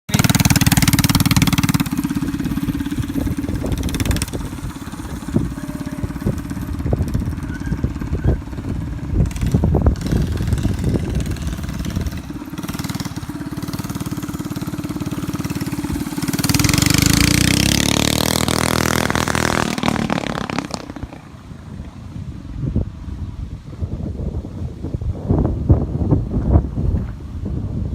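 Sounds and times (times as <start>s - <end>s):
mini bike engine running: 0.1s - 22.2s.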